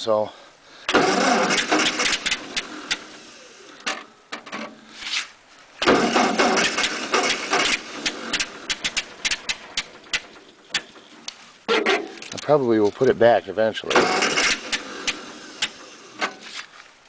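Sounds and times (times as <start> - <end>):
tractor starter cranking engine: 0.9 - 4.7, 5.8 - 12.6, 13.9 - 16.6.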